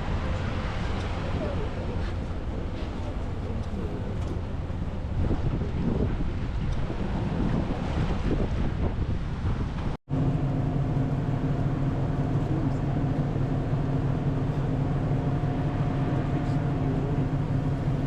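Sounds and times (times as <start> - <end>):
boat engine hum: 0.0 - 18.0
wind on microphone: 2.8 - 10.0.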